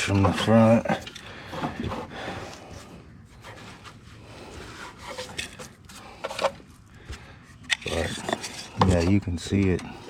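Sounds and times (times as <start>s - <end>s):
grass and clay scraping: 7.6s - 9.8s.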